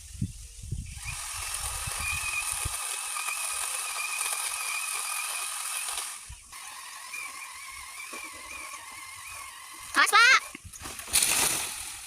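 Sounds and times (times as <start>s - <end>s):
wind buffeting microphone: 0.0s - 2.8s
mini chainsaw whine: 0.9s - 12.0s.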